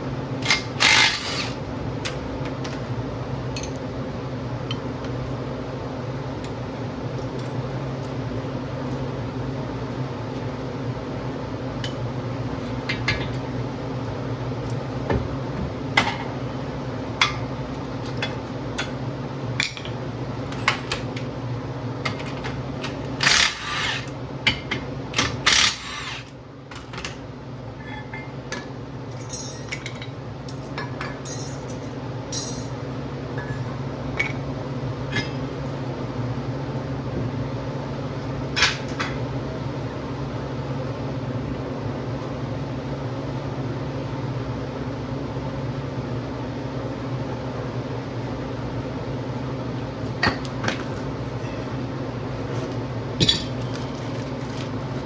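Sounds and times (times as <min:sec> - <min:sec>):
steady low hum: 0:00.0 - 0:55.0
metal tools clinking: 0:29.2 - 0:30.1, 0:31.2 - 0:32.8, 0:53.2 - 0:54.3.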